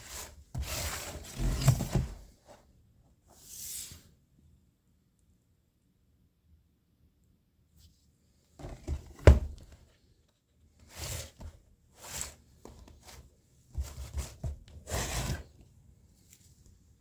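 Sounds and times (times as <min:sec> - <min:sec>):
packaging rustling and scraping: 0:00.0 - 0:02.6, 0:10.8 - 0:15.6.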